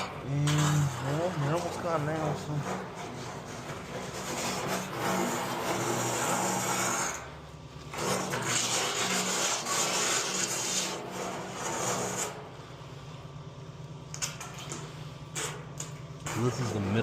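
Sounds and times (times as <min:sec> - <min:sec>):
truck engine humming: 0:06.7 - 0:08.0, 0:11.1 - 0:17.0.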